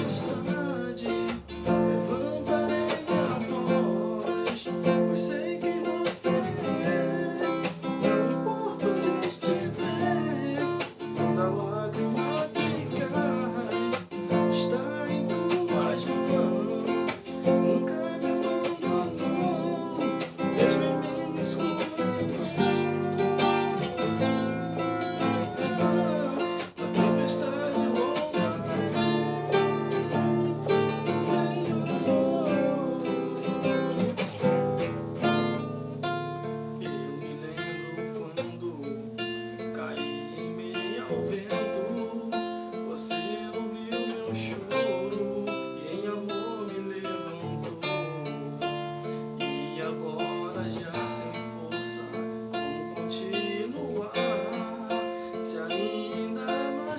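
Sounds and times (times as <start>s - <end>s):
person singing: 0.0s - 35.7s, 36.3s - 56.9s
acoustic guitar strumming: 0.0s - 56.9s.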